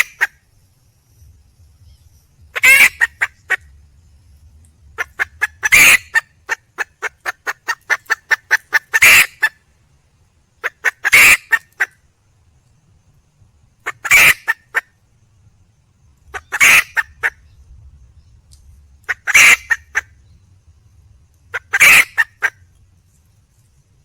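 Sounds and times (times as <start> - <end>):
hen clucking: 0.0 - 0.3, 2.5 - 3.8, 5.0 - 9.6, 10.6 - 11.9, 13.8 - 14.8, 16.3 - 17.4, 19.0 - 20.1, 21.5 - 22.6
hen squawking: 2.5 - 3.7, 5.0 - 9.5, 10.6 - 11.9, 13.9 - 14.8, 16.4 - 17.4, 19.1 - 20.1, 21.5 - 22.6.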